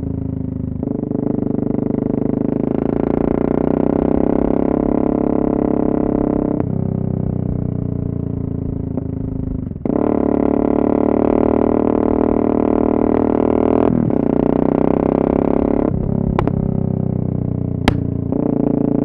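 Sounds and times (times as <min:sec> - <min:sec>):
motorcycle engine revving: 0:12.8 - 0:19.0.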